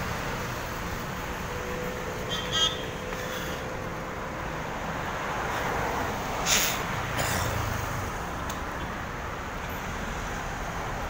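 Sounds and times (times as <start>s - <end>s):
passing vehicles rumbling: 0.0s - 11.0s
short hiss: 6.4s - 6.8s.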